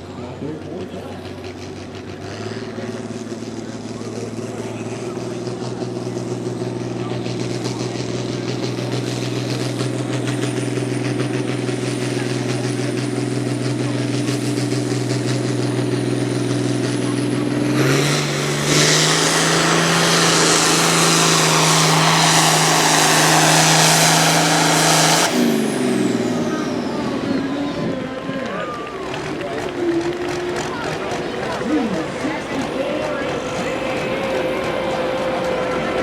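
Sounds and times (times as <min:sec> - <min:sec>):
pulling tractor engine running: 0:00.0 - 0:36.0
loud rushing noise: 0:17.0 - 0:27.4, 0:28.9 - 0:36.0.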